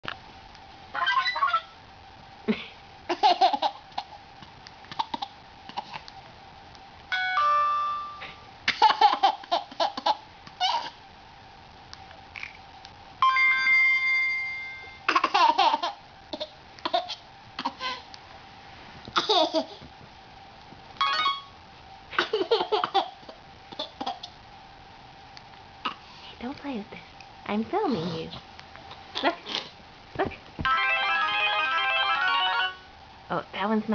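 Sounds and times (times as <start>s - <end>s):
phone chime tone: 7.1s - 8.5s, 13.2s - 15.0s
toddler laughing: 8.7s - 11.0s, 15.1s - 17.9s.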